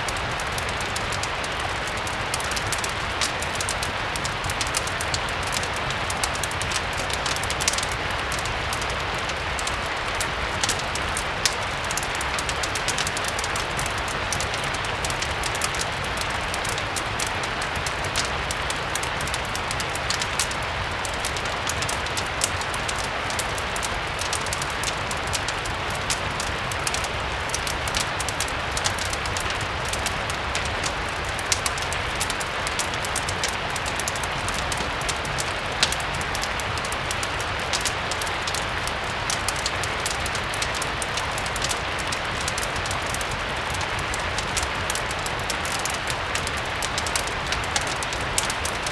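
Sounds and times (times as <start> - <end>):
steady rain hiss: 0.0 - 48.9
wood fire crackling and popping: 0.0 - 48.9.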